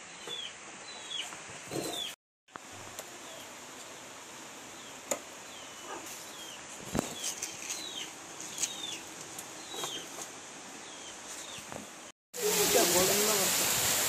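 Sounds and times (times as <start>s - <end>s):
small bird chirping: 0.1s - 1.3s, 4.8s - 10.2s
steady hiss: 2.5s - 14.0s.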